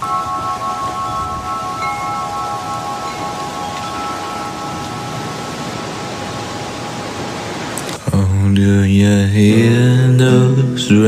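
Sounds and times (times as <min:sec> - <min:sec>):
chimes ringing: 0:00.0 - 0:07.7
steady rain-like hiss: 0:00.0 - 0:11.0.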